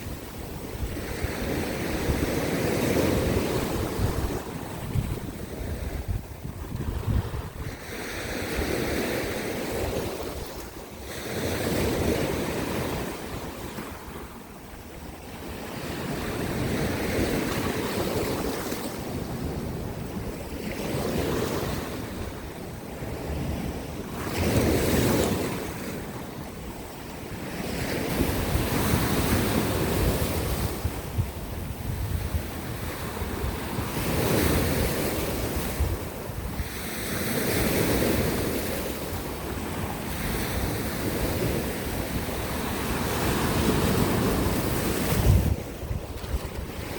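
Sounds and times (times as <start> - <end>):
wind buffeting microphone: 0.0 - 46.9
waves breaking on rocks: 39.6 - 46.9.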